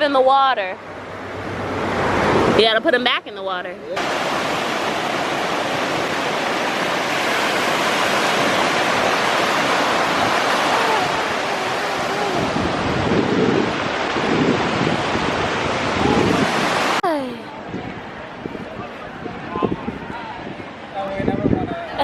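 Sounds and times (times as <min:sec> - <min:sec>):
ocean surf washing up: 0:00.6 - 0:02.8, 0:03.9 - 0:17.2
wind gusting on microphone: 0:00.8 - 0:02.8, 0:03.9 - 0:22.0.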